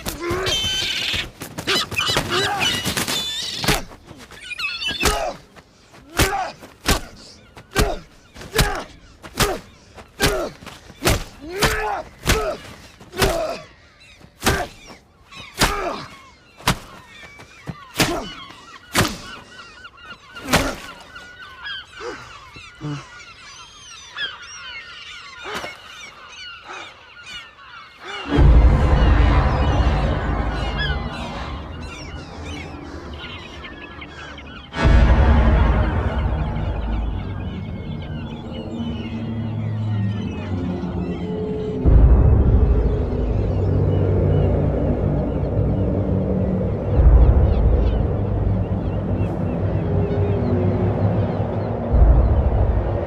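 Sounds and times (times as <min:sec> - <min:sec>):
seagull squawking: 0:00.0 - 0:34.9, 0:36.6 - 0:41.9
gulls calling: 0:00.0 - 0:53.0.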